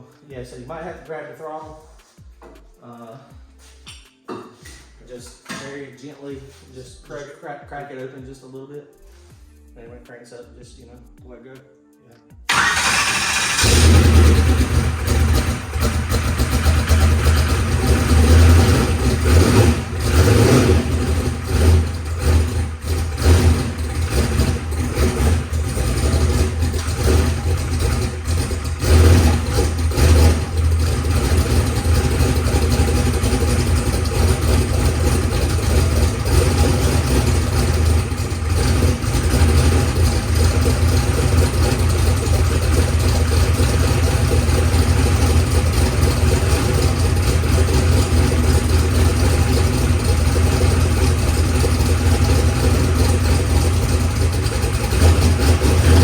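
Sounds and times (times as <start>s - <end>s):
race car engine idling: 12.5s - 56.0s.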